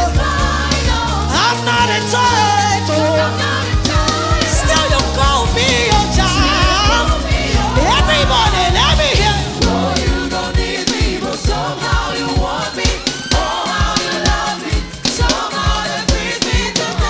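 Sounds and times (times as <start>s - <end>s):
bass: 0.0s - 12.6s
gospel music: 0.0s - 17.0s
steady drum beat: 0.0s - 17.0s
voices singing with vibrato: 0.0s - 17.0s.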